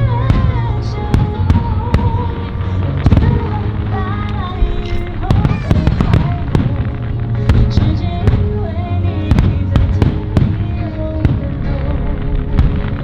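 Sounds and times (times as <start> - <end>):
fireworks bangs: 0.0 - 10.6
music playing: 0.0 - 13.0.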